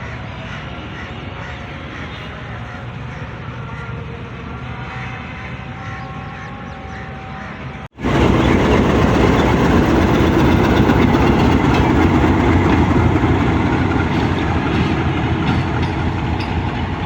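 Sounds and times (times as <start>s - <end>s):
train wheels rumbling on rails: 8.0s - 17.0s.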